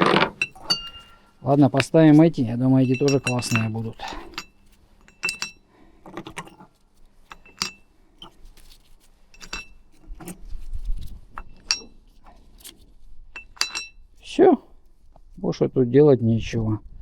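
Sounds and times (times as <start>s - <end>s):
metal clutch weights clinking: 0.0s - 10.4s, 11.3s - 12.7s, 13.4s - 14.2s.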